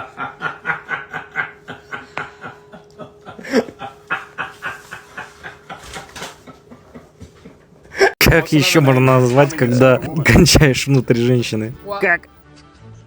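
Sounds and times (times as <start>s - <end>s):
person snickering laughter: 0.1s - 7.0s.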